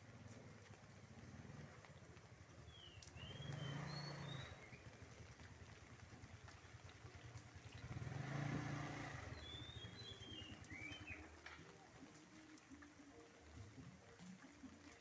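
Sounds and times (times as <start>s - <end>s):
steady hiss of rain: 0.0s - 15.0s
vehicles passing: 0.1s - 12.1s.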